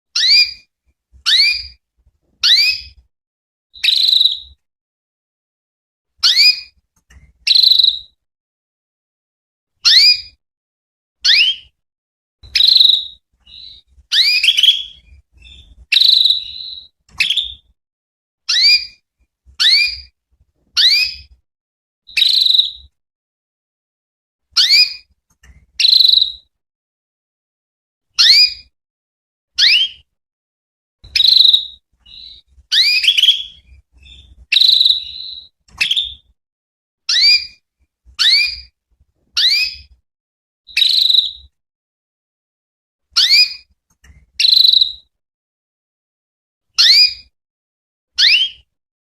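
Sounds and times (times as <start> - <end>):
canary chirping: 0.2 - 0.7, 1.3 - 1.8, 2.4 - 3.0, 3.8 - 4.6, 6.2 - 6.8, 7.4 - 8.2, 9.8 - 10.4, 11.2 - 11.7, 12.4 - 17.7, 18.5 - 19.0, 19.6 - 20.2, 20.8 - 21.4, 22.1 - 22.9, 24.6 - 26.5, 28.2 - 28.7, 29.6 - 30.1, 31.0 - 36.3, 37.1 - 37.6, 38.2 - 38.7, 39.4 - 40.0, 40.7 - 41.5, 43.2 - 43.7, 44.4 - 45.1, 46.8 - 47.3, 48.2 - 48.7.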